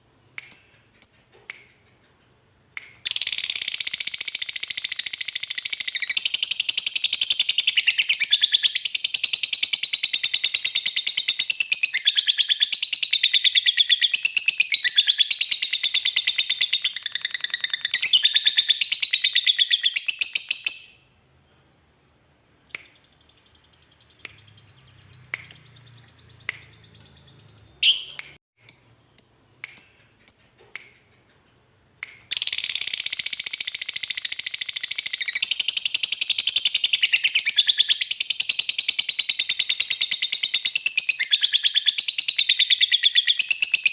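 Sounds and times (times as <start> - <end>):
lovebird short chirps: 24.1 - 30.6.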